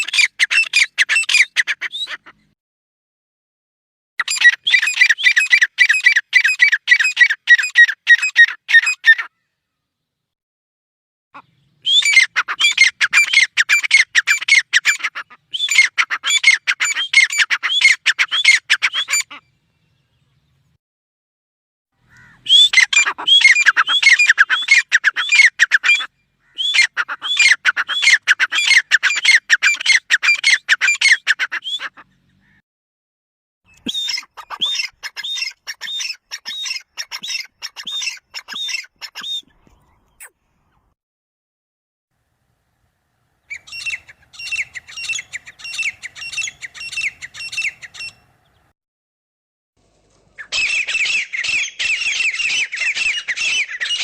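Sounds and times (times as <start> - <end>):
partridge calling: 0.0 - 2.6, 4.2 - 9.4, 11.4 - 20.3, 22.0 - 32.6, 33.7 - 40.4, 43.4 - 48.6, 50.4 - 54.0.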